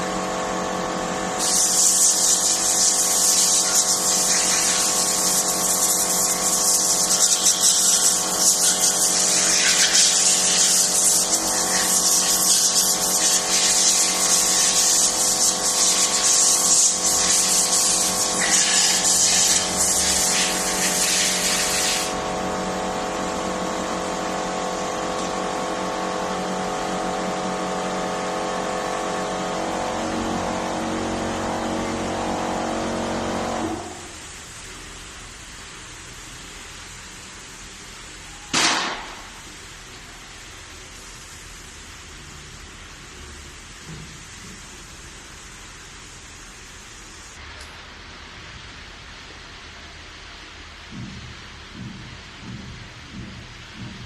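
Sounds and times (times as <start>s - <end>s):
pressure cleaning jet hissing: 1.4s - 22.2s.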